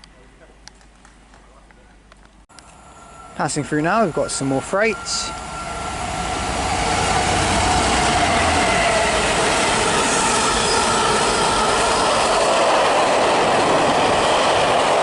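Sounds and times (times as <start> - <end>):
faint ringing tones: 2.6 - 6.2
freight train wheels on rails: 2.6 - 15.0.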